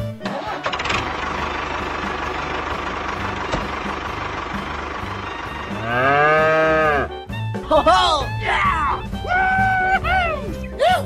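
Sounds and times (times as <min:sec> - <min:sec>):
tractor engine chugging: 0:00.3 - 0:07.6.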